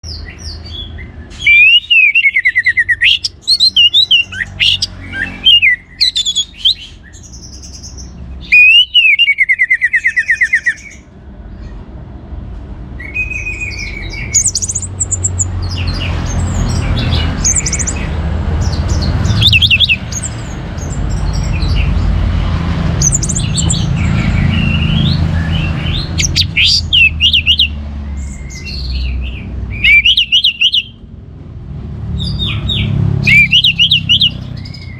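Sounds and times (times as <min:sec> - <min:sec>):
thrush singing trilled phrases: 0:01.4 - 0:06.9, 0:08.4 - 0:10.9, 0:19.2 - 0:20.4, 0:23.0 - 0:27.8, 0:29.8 - 0:31.0.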